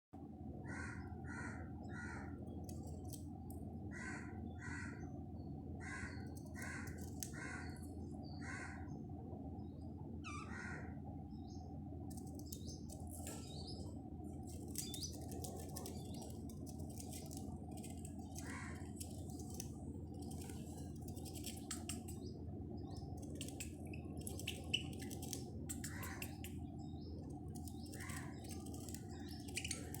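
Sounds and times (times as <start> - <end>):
low hum: 0.2 - 30.0
birds chattering: 0.6 - 30.0
budgerigars squawking: 23.6 - 26.5.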